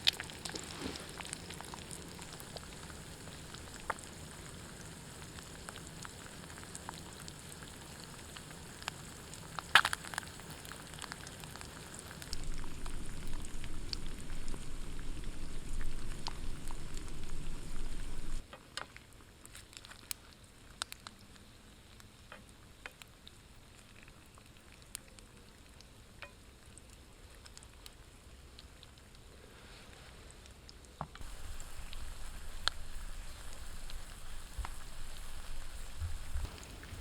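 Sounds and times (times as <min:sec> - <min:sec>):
campfire hissing and crackling: 0:00.0 - 0:37.0
low rumbling noise: 0:12.3 - 0:18.4, 0:31.2 - 0:37.0.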